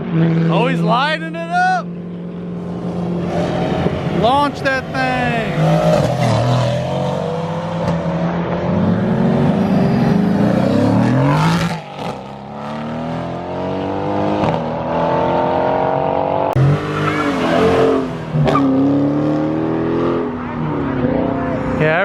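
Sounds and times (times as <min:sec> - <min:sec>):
car engine revving hard: 0:03.2 - 0:20.4.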